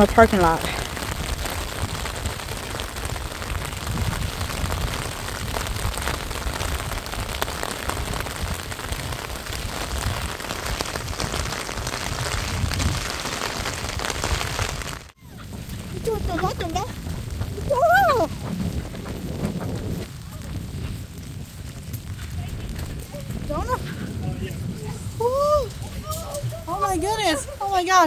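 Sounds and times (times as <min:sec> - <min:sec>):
steady rain falling: 0:00.0 - 0:28.0
low rumble: 0:15.0 - 0:27.7.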